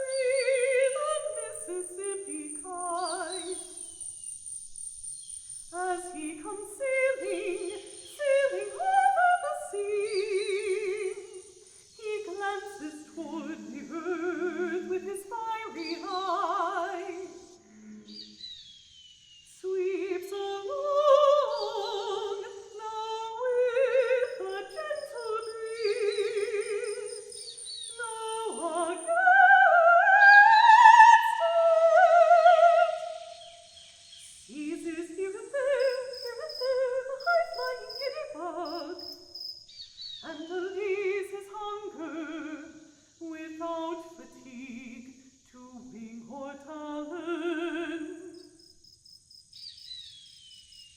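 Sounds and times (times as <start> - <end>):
woman singing operatically: 0.0 - 3.7, 5.8 - 18.2, 19.6 - 33.4, 34.5 - 39.1, 40.2 - 48.4
birdsong trill: 0.0 - 12.3, 18.0 - 19.6, 23.8 - 29.2, 32.8 - 34.9, 35.7 - 40.7, 48.4 - 50.9.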